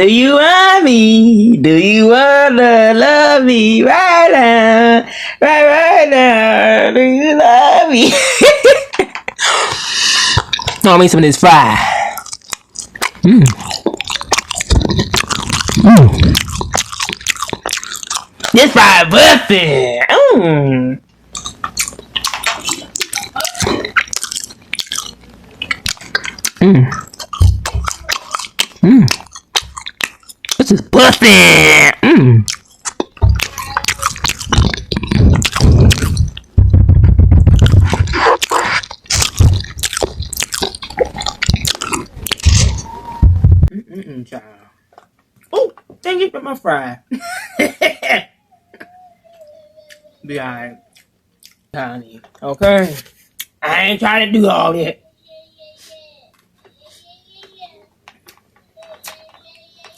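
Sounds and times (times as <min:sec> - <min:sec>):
mouth clicks: 0:09.5 - 0:10.8, 0:12.1 - 0:18.6, 0:21.3 - 0:43.7
chewing crunchy fries: 0:10.2 - 0:18.8, 0:21.3 - 0:43.0, 0:50.8 - 0:51.7
person humming: 0:13.2 - 0:13.6, 0:14.8 - 0:16.9, 0:26.6 - 0:28.2, 0:28.8 - 0:29.2, 0:42.4 - 0:43.8.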